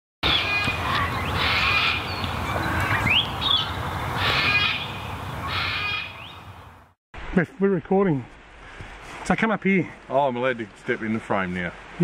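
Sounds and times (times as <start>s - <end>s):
birds calling: 0.2s - 6.9s.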